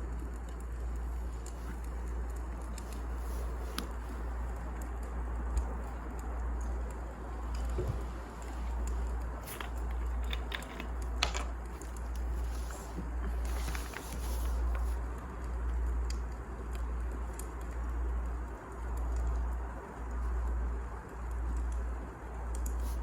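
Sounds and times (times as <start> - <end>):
wood fire crackling: 0.0 - 23.0
fire hissing: 0.5 - 5.0, 11.7 - 15.5.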